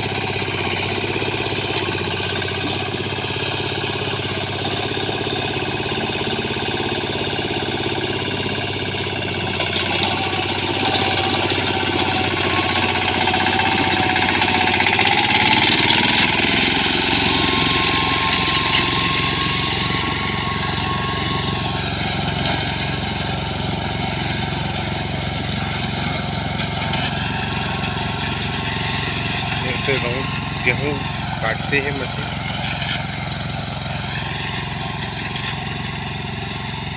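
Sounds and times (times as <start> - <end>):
reaper-binder engine running: 0.0 - 36.9.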